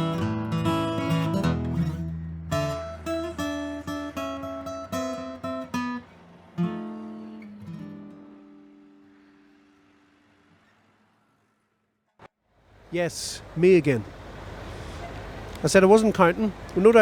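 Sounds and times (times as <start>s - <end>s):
acoustic guitar strumming: 0.0s - 10.8s.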